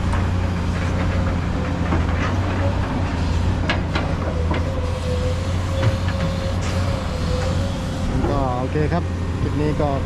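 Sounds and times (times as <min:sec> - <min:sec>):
diesel engine rumbling: 0:00.0 - 0:10.0.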